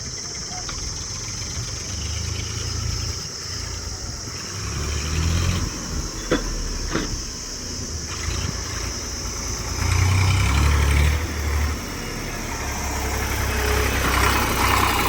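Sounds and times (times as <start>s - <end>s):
heavy machine engine rumbling: 0.0s - 15.0s.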